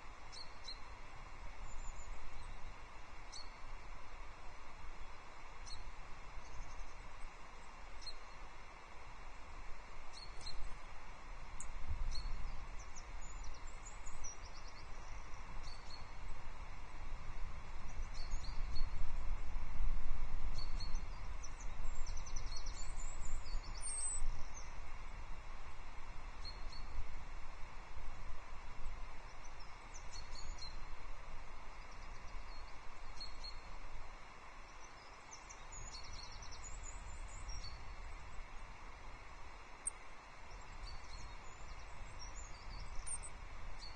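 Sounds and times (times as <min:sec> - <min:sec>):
wind noise on microphone: 0:15.4 - 0:29.2
small birds chirping: 0:20.6 - 0:24.8, 0:34.6 - 0:38.7, 0:39.7 - 0:43.9.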